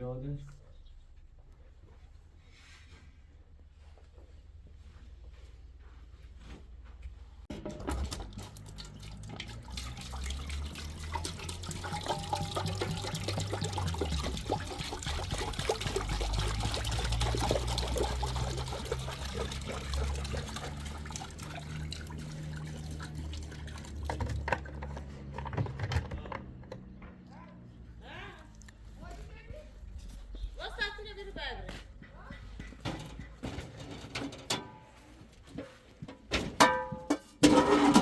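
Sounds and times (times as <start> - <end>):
running water splashing: 8.0 - 24.5.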